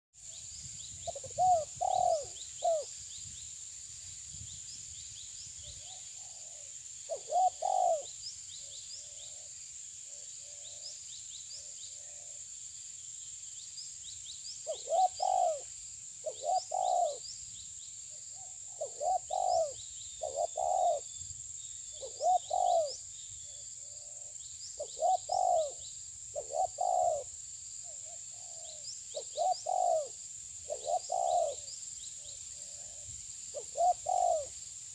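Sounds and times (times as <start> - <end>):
small birds chirping: 0.2 - 3.8, 4.4 - 12.4, 13.1 - 34.9
dove cooing: 1.1 - 2.9, 5.8 - 8.1, 14.7 - 17.2, 18.4 - 21.1, 22.0 - 23.0, 23.8 - 27.3, 28.0 - 31.7, 32.6 - 34.6.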